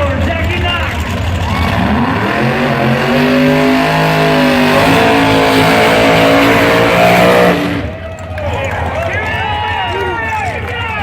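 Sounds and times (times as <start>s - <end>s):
race car engine revving: 0.0s - 8.3s.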